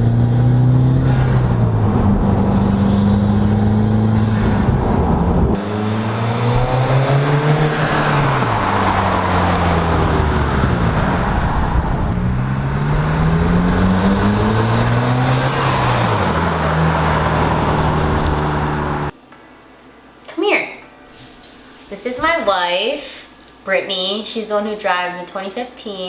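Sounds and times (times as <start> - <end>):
car engine note rising and falling: 0.0 - 19.2.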